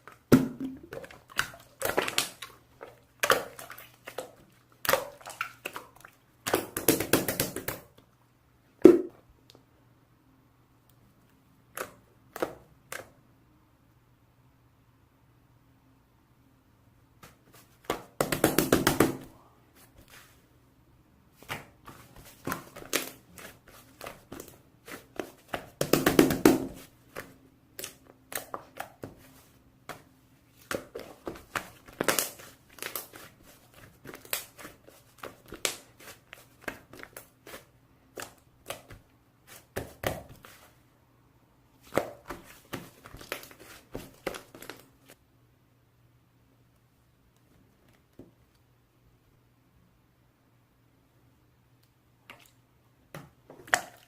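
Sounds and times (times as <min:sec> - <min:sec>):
rustling and crinkling: 0:41.8 - 0:45.2.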